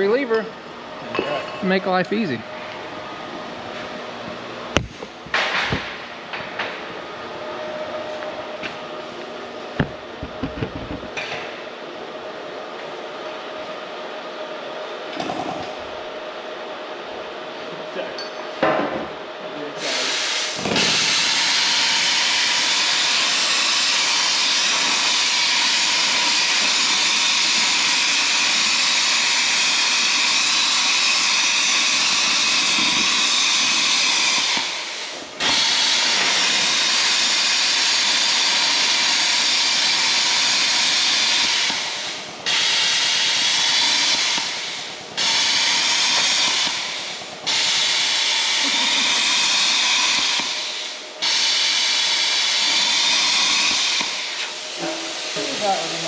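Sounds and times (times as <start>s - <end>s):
cutting torch hissing: 19.8s - 56.0s.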